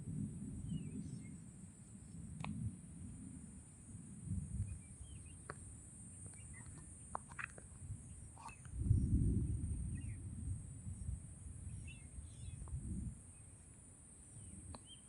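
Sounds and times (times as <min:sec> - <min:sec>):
faint bird chirps: 0:00.5 - 0:02.3, 0:06.2 - 0:10.3, 0:11.0 - 0:13.6, 0:14.3 - 0:15.0.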